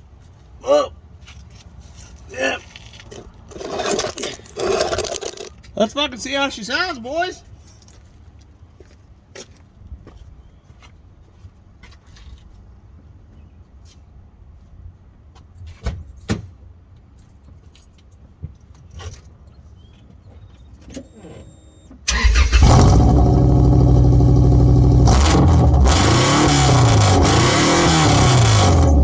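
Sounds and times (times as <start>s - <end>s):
car engine starting and revving: 22.1s - 29.0s.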